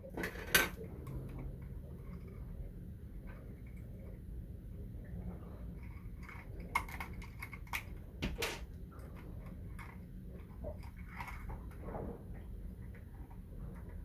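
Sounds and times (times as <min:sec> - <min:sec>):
plastic parts clicking and clacking: 0:00.0 - 0:01.4, 0:05.8 - 0:11.8
low steady hum: 0:00.0 - 0:14.0.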